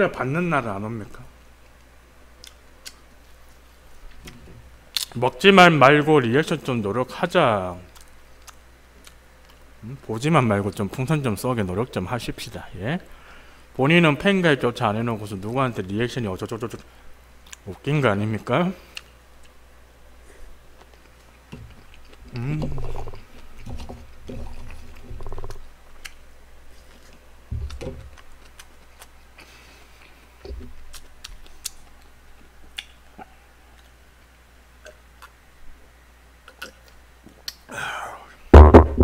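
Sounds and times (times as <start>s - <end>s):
person chewing: 7.9s - 9.6s, 20.8s - 26.2s, 26.8s - 30.2s, 30.8s - 34.0s
low murmurs: 22.3s - 23.3s
soft thumps: 38.6s - 39.0s.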